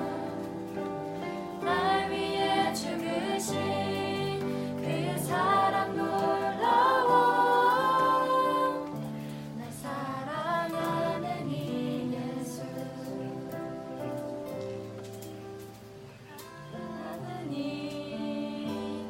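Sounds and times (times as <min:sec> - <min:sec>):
people singing a worship song: 0:00.0 - 0:14.5, 0:16.3 - 0:19.0.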